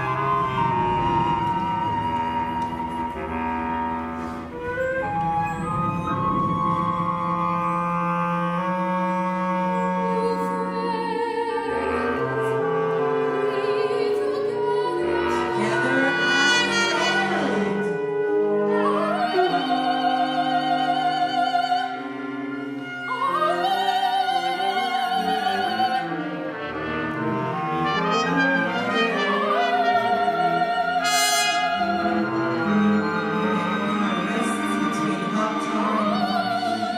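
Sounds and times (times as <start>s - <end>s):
chamber ensemble playing: 0.0s - 36.9s
soprano singing with vibrato: 10.0s - 26.6s, 27.9s - 36.9s.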